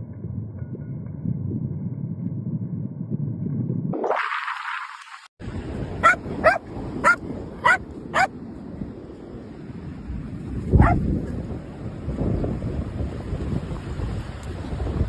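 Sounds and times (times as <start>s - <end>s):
rushing background noise: 5.4s - 11.0s
dog barking: 6.0s - 8.3s, 10.8s - 11.0s.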